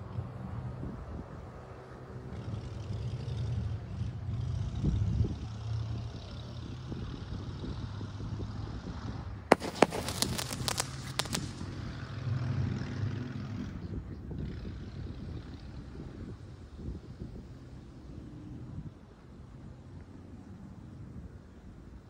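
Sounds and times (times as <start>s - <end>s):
fireworks crackling and popping: 9.5s - 12.3s.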